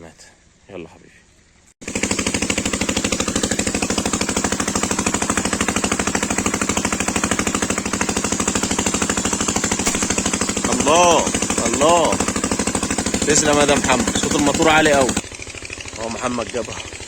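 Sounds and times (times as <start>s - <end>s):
rapid even thumping: 1.8s - 15.3s
motor running loud: 1.8s - 17.0s.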